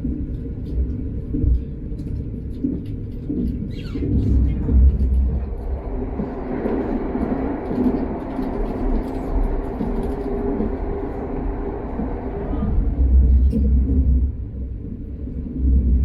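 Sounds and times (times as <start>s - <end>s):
train wheels rumbling on rail: 0.0s - 16.0s
low hum: 11.2s - 16.0s.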